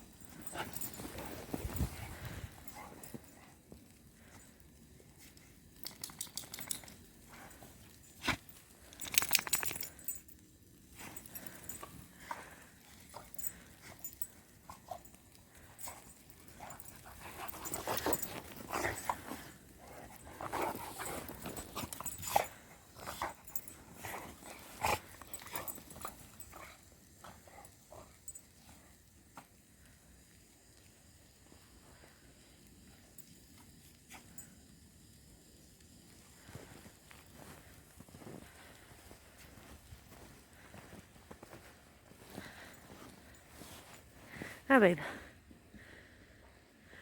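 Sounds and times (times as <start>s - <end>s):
dogs scuffling in snow: 0.0s - 3.7s, 10.9s - 27.9s, 35.9s - 45.2s.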